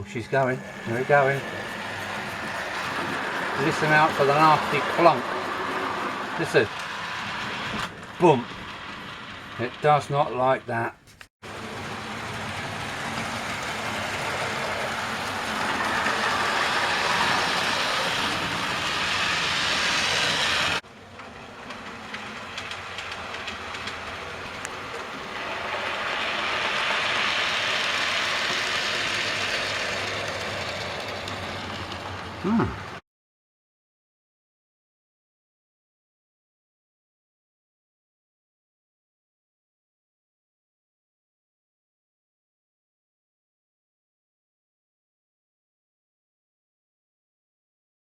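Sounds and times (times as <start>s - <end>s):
model train motor whirring: 0.4s - 10.6s, 11.5s - 33.0s
train wheels clattering on track: 0.6s - 10.2s, 11.1s - 33.0s.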